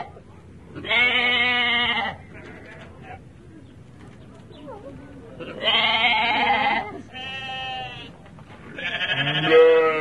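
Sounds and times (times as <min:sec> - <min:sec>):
animal wavering drawn-out cry: 0:08.9 - 0:10.0.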